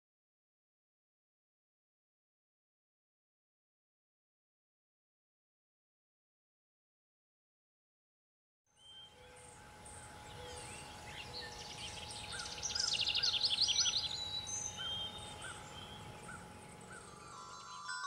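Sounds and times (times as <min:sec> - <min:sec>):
faint steady tone: 0:08.7 - 0:18.0
bird trilling high notes: 0:08.8 - 0:18.0.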